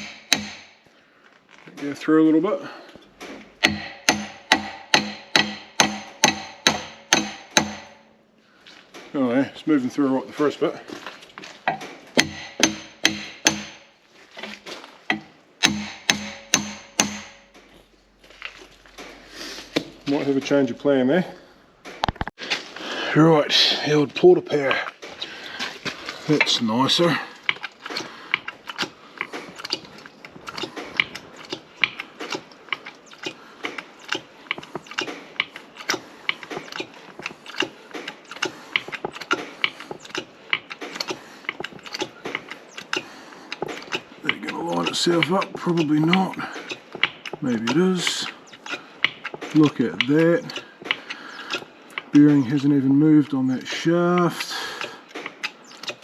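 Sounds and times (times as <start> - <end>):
hammer striking steel shaft: 0.0 - 0.8, 3.6 - 8.2, 11.7 - 13.9, 15.1 - 17.6.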